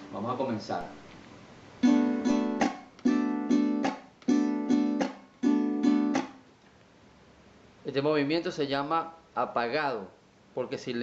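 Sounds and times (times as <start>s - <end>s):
cuatro strummed with damped strokes: 1.8s - 6.4s.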